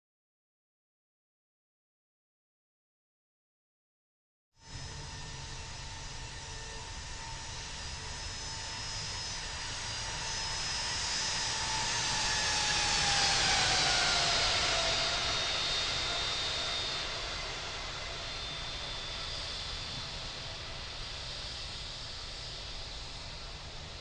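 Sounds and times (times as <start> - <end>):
jet plane passing with whine: 4.6 - 24.0.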